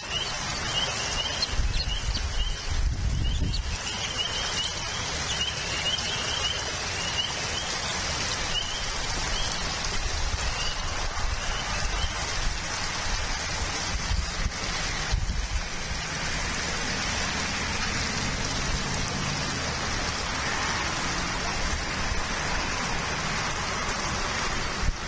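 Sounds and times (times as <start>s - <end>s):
bird chirping: 0.0s - 7.7s
steady rain falling: 0.0s - 25.0s.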